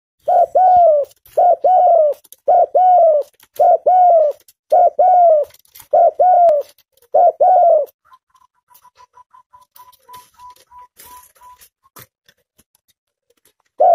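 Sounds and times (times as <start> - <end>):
dove cooing: 0.2 - 11.7.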